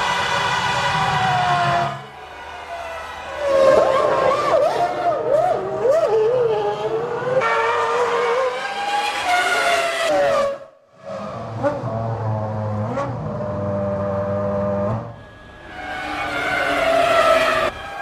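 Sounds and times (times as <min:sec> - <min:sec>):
racing car engine at high revs: 0:11.0 - 0:17.8.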